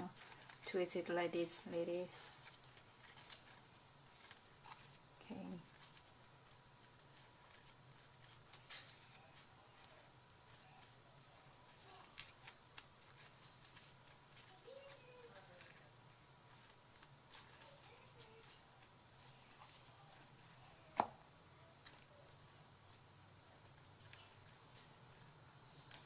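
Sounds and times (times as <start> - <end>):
paper clicks snips and rustles: 0.0 - 15.9, 16.5 - 21.2.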